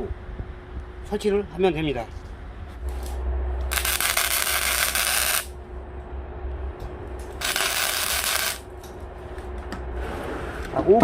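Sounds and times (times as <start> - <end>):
harsh metal scraping: 7.3 - 8.7.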